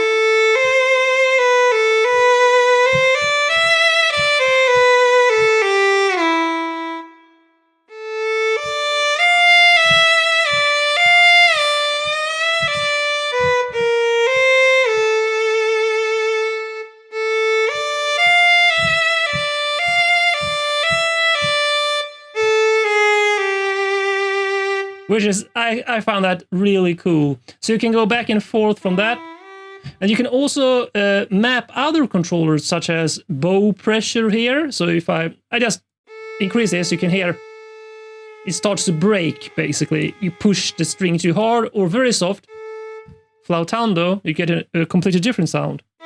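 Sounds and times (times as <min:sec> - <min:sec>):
solo violin slow melody: 0:00.0 - 0:25.7, 0:28.7 - 0:30.2, 0:36.1 - 0:43.5.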